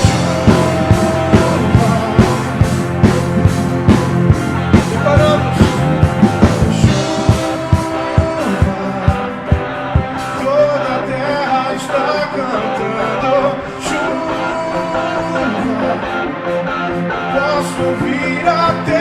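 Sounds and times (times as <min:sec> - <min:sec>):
drum beat: 0:00.0 - 0:10.4
deep bass: 0:00.0 - 0:11.2
worship band playing: 0:00.0 - 0:19.0.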